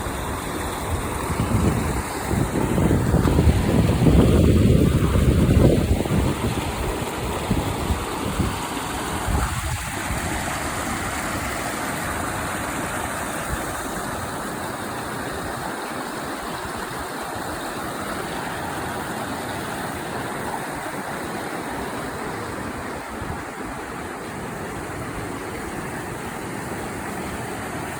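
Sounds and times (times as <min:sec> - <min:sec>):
creek water flowing over rocks: 0:00.0 - 0:27.9
wind buffeting microphone: 0:00.8 - 0:11.6, 0:21.7 - 0:27.6.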